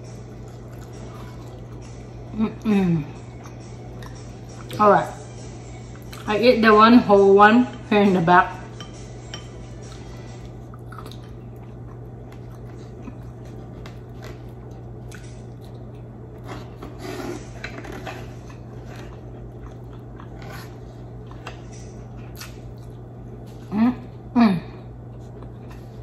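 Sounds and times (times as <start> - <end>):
person chewing: 0.0 - 2.4, 9.6 - 23.7, 25.0 - 26.0
steady low hum: 0.0 - 26.0.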